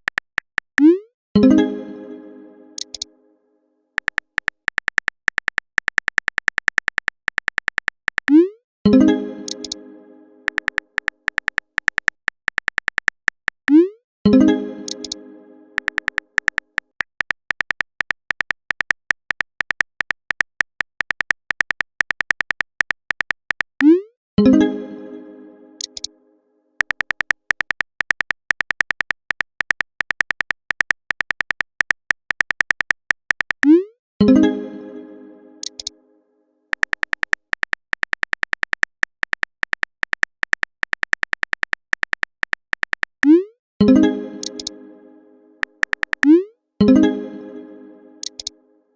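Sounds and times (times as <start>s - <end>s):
keyboard typing clicks: 0.0s - 1.0s, 2.8s - 3.1s, 4.0s - 9.8s, 10.4s - 15.2s, 15.8s - 24.0s, 25.8s - 26.1s, 26.8s - 34.4s, 35.6s - 35.9s, 36.7s - 44.8s, 45.6s - 47.0s, 48.2s - 48.5s.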